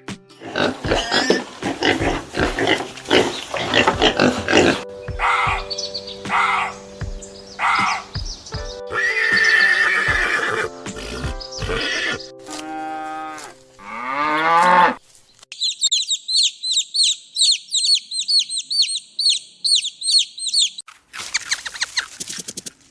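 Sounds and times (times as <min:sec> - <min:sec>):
background music: 0:00.0 - 0:14.9
horse-like whinny: 0:08.9 - 0:12.2
high squeaky chirps: 0:15.5 - 0:22.9.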